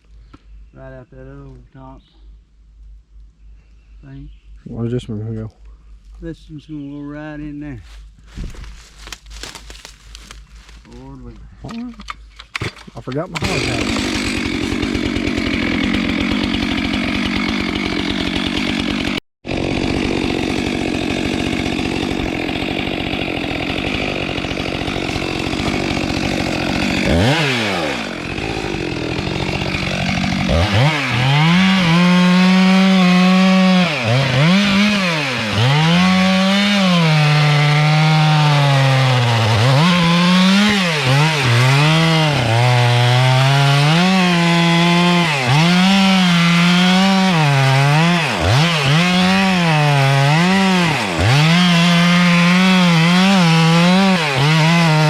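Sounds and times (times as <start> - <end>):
chainsaw cutting timber: 12.6 - 55.0.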